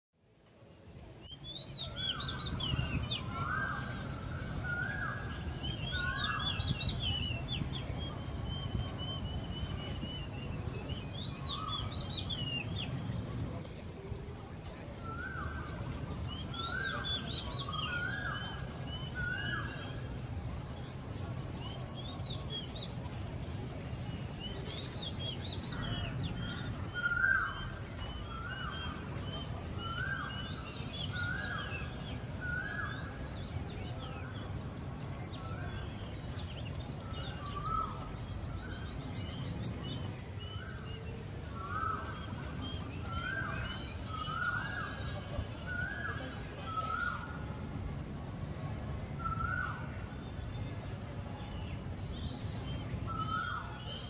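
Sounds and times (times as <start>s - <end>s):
low city rumble: 0.2s - 54.0s
birds twittering: 1.4s - 13.6s, 15.0s - 20.1s, 21.4s - 47.4s, 49.1s - 54.0s.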